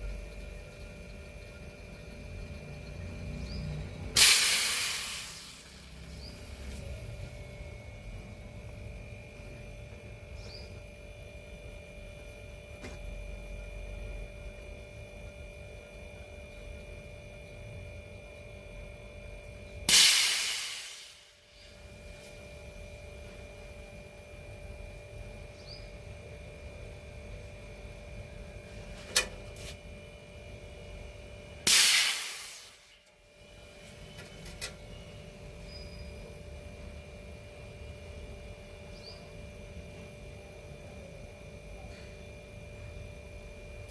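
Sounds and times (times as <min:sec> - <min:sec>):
steady electrical hum: 0:00.0 - 0:43.9
sudden bursts of loud hiss: 0:04.1 - 0:06.0, 0:19.9 - 0:21.4, 0:31.7 - 0:33.0.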